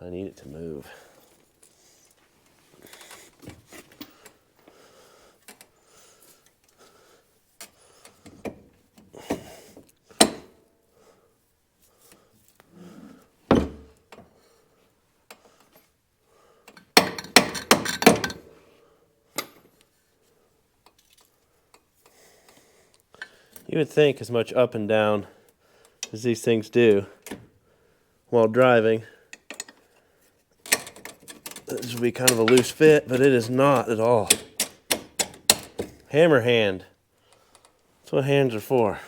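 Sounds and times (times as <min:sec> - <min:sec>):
metal tools clinking and knocking: 0:16.7 - 0:18.5, 0:29.3 - 0:29.9, 0:30.6 - 0:36.0.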